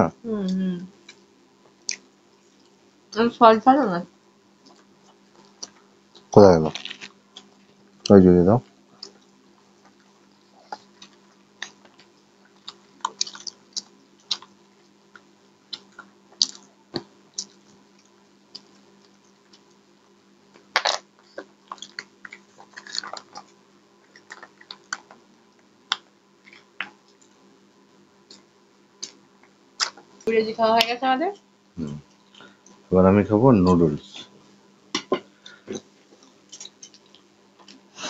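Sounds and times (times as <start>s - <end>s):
faint steady hum: 0.0s - 38.0s
chewing and crunching fried food: 4.6s - 27.5s, 28.2s - 30.3s, 35.3s - 37.9s.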